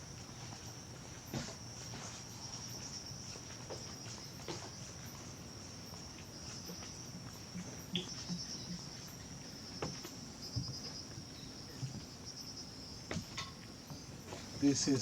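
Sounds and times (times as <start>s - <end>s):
insects trilling: 0.0s - 15.0s
soft knocks: 13.1s - 14.5s.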